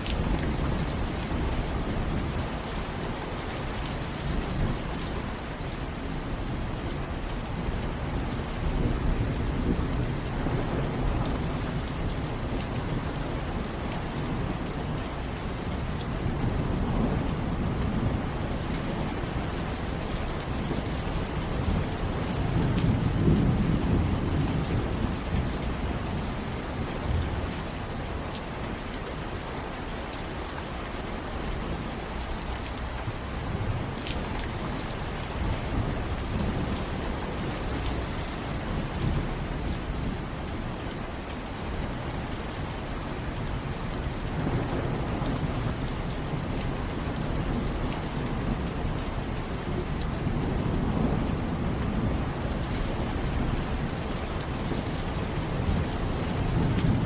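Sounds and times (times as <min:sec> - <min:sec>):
steady rain: 0:00.0 - 0:57.0
low rolling thunder: 0:07.0 - 0:13.5, 0:16.2 - 0:27.6, 0:43.4 - 0:57.0.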